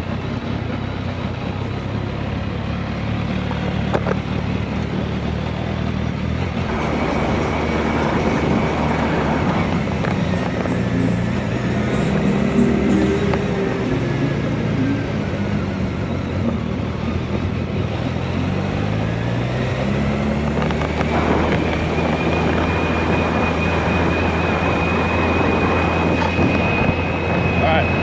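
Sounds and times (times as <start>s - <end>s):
motorcycle engine accelerating: 0.0s - 28.0s
thin high whine: 6.7s - 15.2s
wind noise on microphone: 6.7s - 18.0s, 19.3s - 28.0s.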